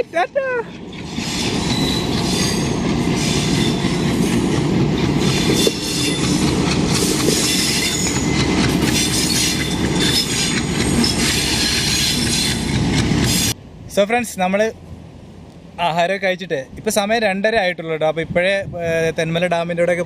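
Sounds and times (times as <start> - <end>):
train wheels clattering on rails: 0.7 - 13.6
high wheel squeal: 0.9 - 4.4, 5.2 - 6.4, 7.0 - 13.6.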